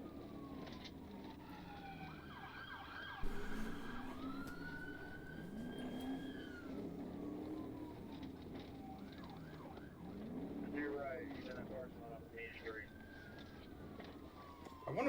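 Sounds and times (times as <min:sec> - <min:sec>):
police siren wailing: 0:00.0 - 0:15.0
sudden thump: 0:03.2 - 0:06.4.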